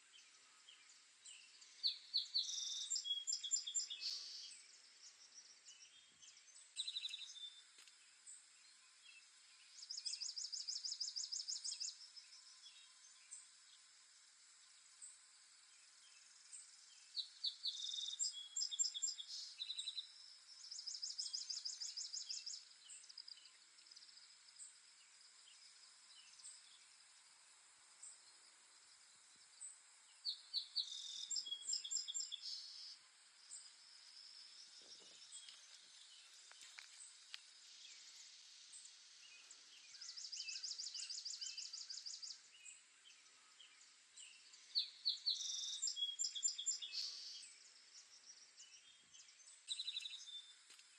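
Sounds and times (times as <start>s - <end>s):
faint bird chirps: 0.0s - 50.9s
steady high hiss: 19.0s - 50.9s.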